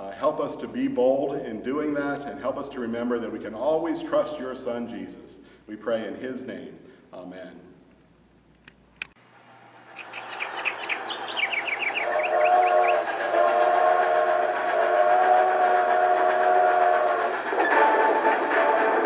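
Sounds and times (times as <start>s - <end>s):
steam locomotive chuffing: 9.3s - 19.0s
theme music: 9.7s - 19.0s
chord steam whistle: 10.4s - 19.0s.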